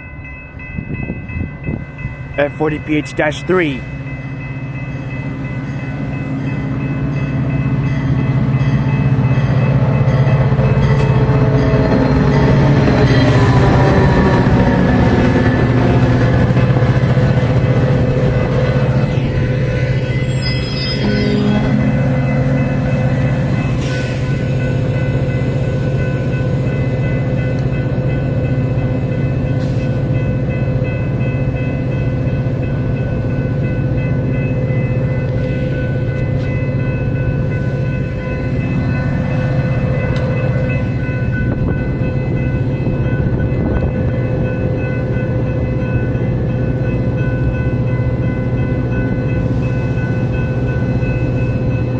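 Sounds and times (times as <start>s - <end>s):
diesel locomotive engine rumbling: 0.0s - 51.9s
train horn tones: 20.4s - 24.0s.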